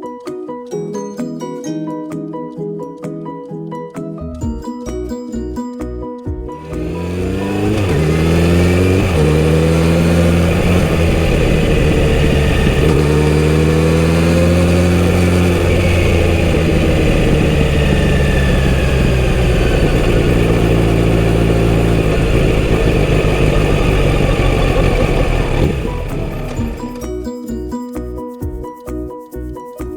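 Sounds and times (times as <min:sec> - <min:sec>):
motorcycle engine revving through gears: 0:06.5 - 0:27.3.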